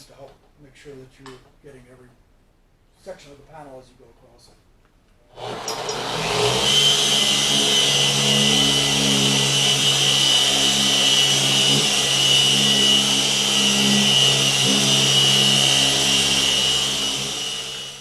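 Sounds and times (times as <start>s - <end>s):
polisher motor humming and whining: 5.4s - 18.0s.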